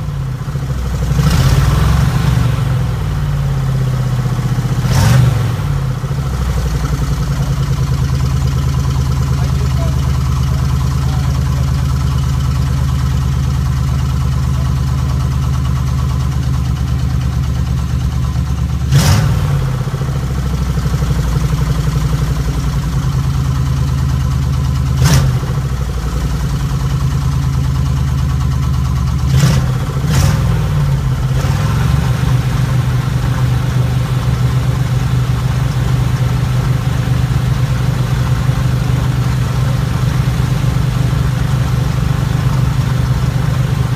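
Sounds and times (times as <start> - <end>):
engine throttle blips: 0.0 - 43.9
van engine idling: 0.0 - 43.9.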